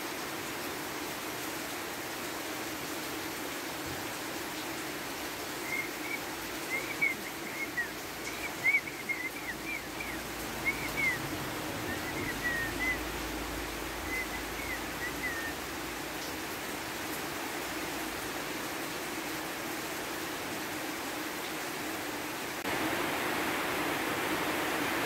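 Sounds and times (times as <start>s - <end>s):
steady rain falling: 0.0s - 25.0s
small bird chirping: 5.7s - 11.2s.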